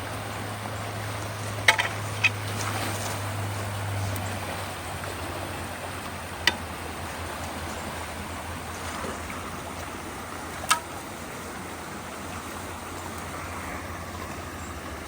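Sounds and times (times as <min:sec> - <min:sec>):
water rushing through culvert: 0:00.0 - 0:15.0.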